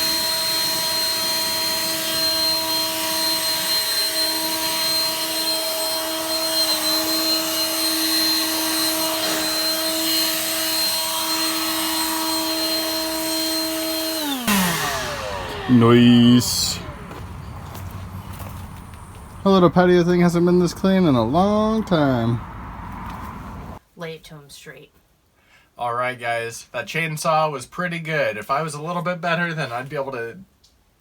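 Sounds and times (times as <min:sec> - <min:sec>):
leaf blower whining: 0:00.0 - 0:19.4.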